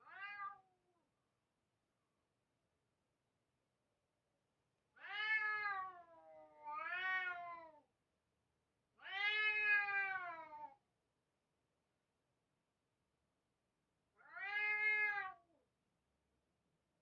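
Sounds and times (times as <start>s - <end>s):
cat meowing: 0.0s - 0.7s, 5.0s - 7.8s, 9.0s - 10.8s, 14.2s - 15.6s.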